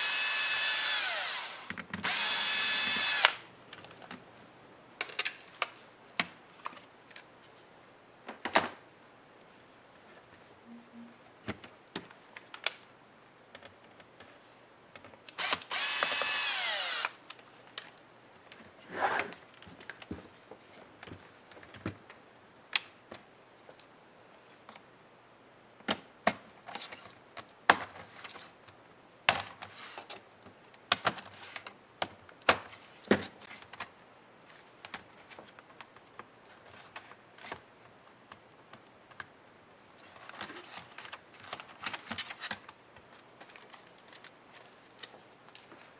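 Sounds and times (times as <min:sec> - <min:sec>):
electric screwdriver motor whine: 0:00.0 - 0:03.4, 0:15.4 - 0:17.2
small screws clicking and tapping: 0:15.4 - 0:17.1.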